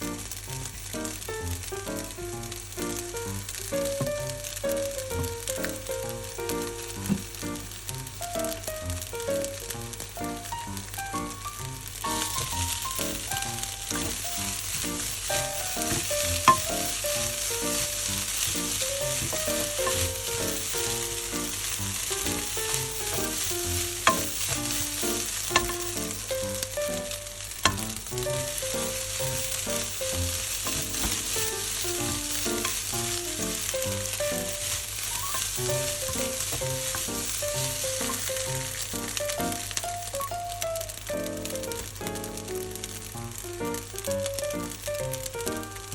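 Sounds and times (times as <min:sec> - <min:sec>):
rice sizzling in a frying pan: 0:00.0 - 0:45.9
utensil clicking against pan: 0:12.0 - 0:40.6.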